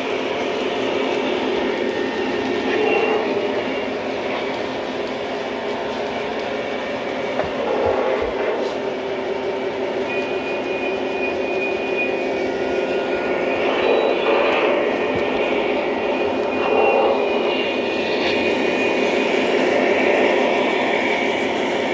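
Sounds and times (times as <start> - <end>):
model train motor hum: 0.0 - 21.9
wheels on rails: 0.0 - 21.9
high squeal: 0.8 - 4.6, 7.4 - 21.9.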